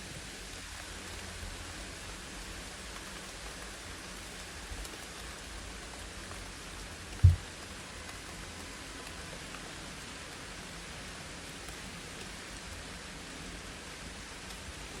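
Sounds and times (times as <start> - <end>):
steady rain falling: 0.0 - 15.0
short low thump: 7.2 - 7.4.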